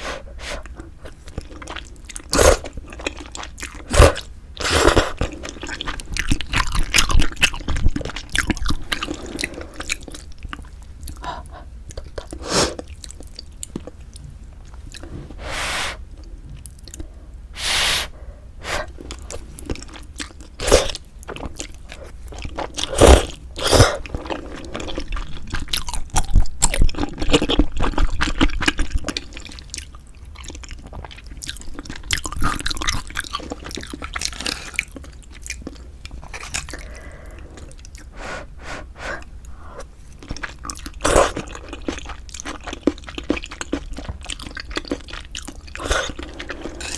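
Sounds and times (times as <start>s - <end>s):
slurping: 17.6s - 19.4s.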